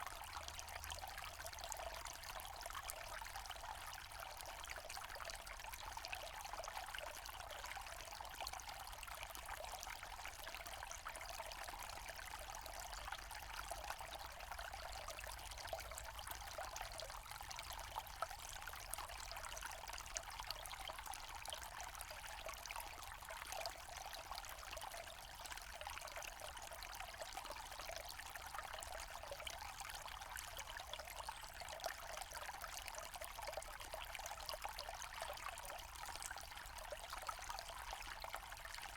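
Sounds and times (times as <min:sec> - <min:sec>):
stream flowing and trickling: 0:00.0 - 0:38.9.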